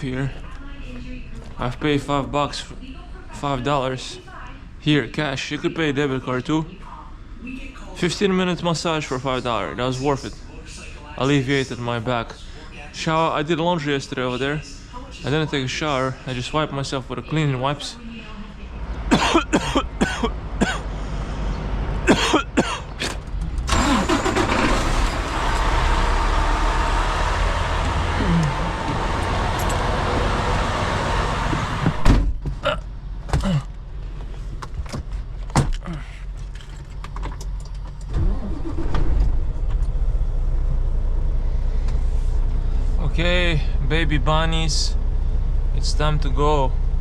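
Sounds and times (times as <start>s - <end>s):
truck engine running: 18.7s - 32.1s.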